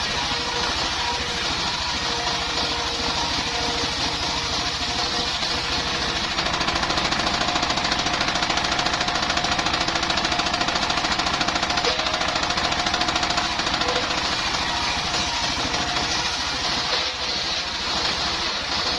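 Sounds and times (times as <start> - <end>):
sawmill engine running: 0.0 - 18.9.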